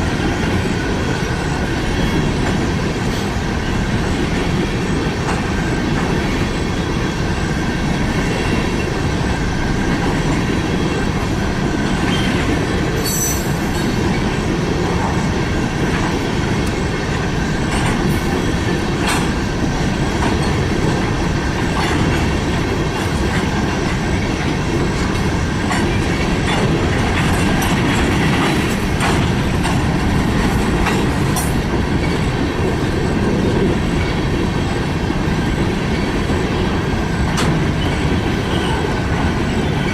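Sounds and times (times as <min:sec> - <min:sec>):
train wheels rumbling on rail: 0:00.0 - 0:39.9
wheels clicking over rail joints: 0:14.9 - 0:34.2.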